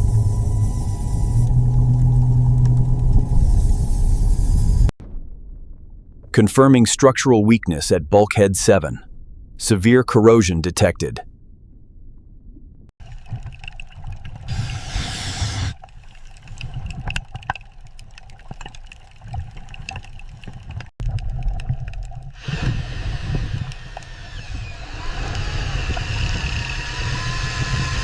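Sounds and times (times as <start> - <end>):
low machine rumble: 0.0 - 6.0
rushing hissing noise: 14.5 - 15.8.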